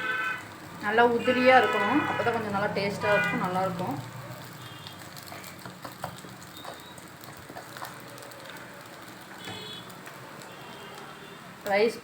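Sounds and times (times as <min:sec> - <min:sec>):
frying hiss: 0:00.0 - 0:12.0
spatula tapping and scraping: 0:05.2 - 0:08.1.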